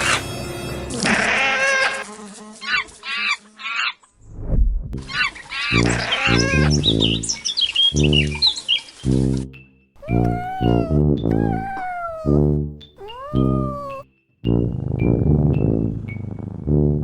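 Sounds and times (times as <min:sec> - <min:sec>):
animal chirping and squeaking: 0:10.0 - 0:14.1.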